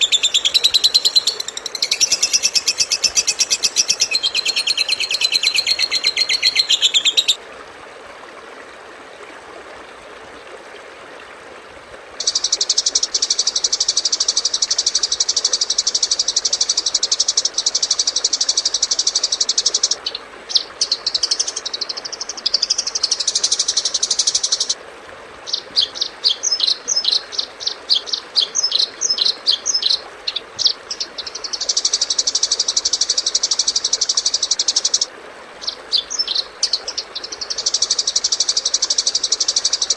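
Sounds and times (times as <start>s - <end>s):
bird chirps: 0.0s - 7.4s.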